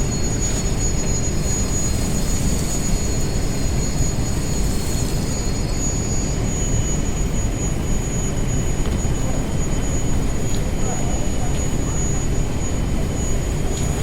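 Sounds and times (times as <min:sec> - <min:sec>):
faint high whine: 0:00.0 - 0:14.0.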